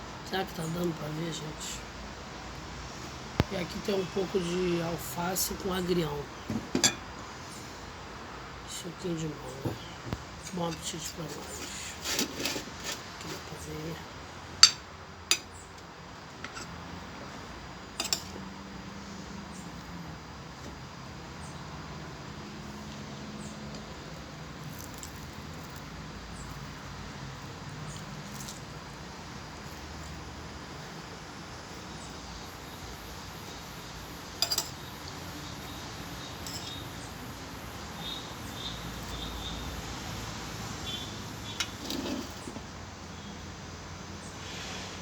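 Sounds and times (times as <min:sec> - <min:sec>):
low hum and hiss: 0:00.0 - 0:45.0
cutlery clicking on a plate: 0:18.0 - 0:18.3, 0:34.4 - 0:34.8.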